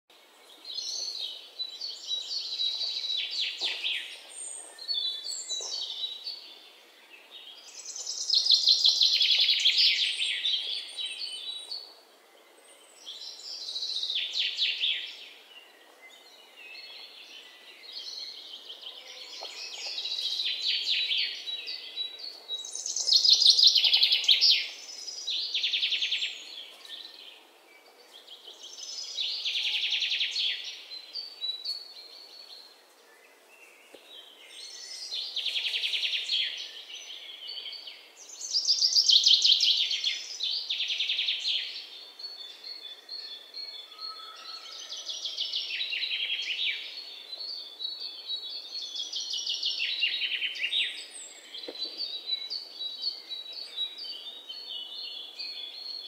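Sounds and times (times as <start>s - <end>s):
faint background hiss: 0.1s - 44.0s.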